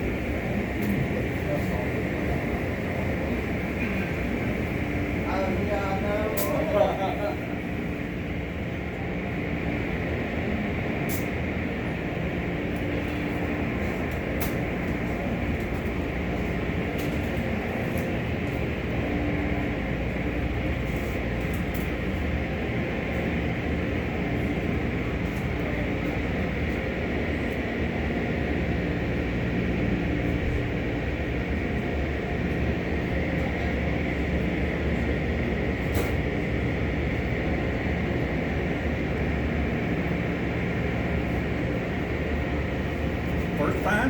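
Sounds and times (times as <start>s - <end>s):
car wash machinery humming: 0.0s - 44.0s.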